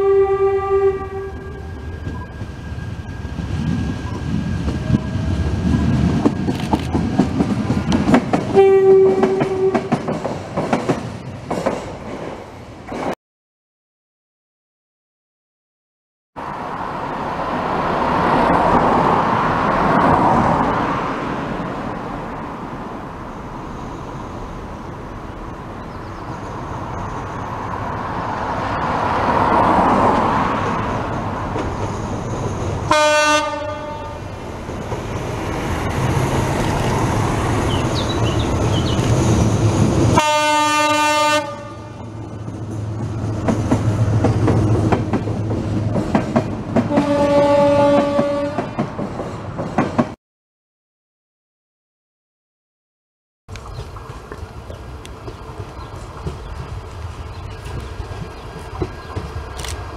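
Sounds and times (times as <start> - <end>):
train horn blasts: 0.0 - 1.8, 8.5 - 10.0, 32.9 - 34.3, 40.1 - 42.1, 46.9 - 48.8
low train rumble: 0.0 - 13.2, 16.4 - 50.2, 53.5 - 59.9
wheels clicking over rail joints: 4.0 - 13.1, 53.5 - 59.9.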